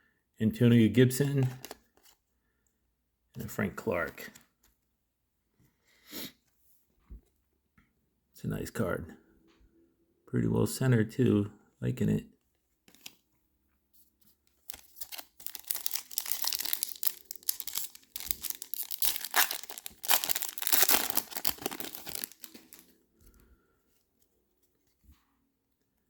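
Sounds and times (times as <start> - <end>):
foil wrapper tearing and crinkling: 14.6 - 22.9.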